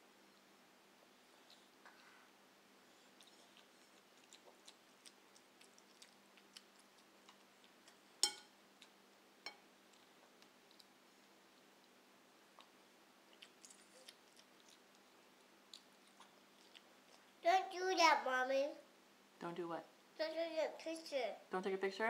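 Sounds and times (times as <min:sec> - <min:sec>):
person chewing: 0:03.1 - 0:09.0, 0:09.9 - 0:10.9, 0:12.6 - 0:17.3.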